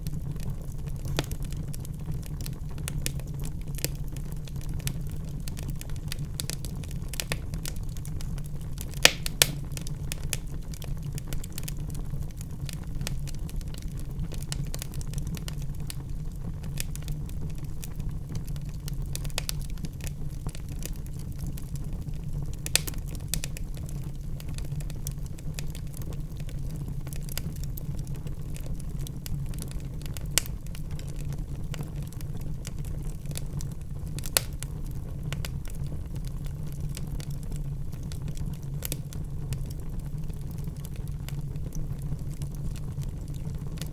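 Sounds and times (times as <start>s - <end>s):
fire sharp pops: 0.0s - 16.0s, 18.2s - 27.6s, 34.1s - 43.9s
low rumble of flames: 0.0s - 43.9s
wood fire crackling: 0.0s - 43.9s.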